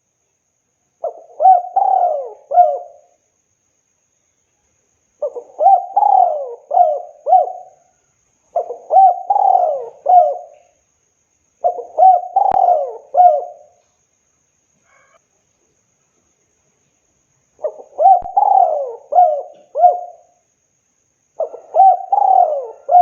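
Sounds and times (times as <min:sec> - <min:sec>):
dove cooing: 0:01.0 - 0:03.1, 0:05.2 - 0:07.9, 0:08.5 - 0:10.8, 0:11.6 - 0:13.8, 0:17.6 - 0:20.4, 0:21.4 - 0:23.0.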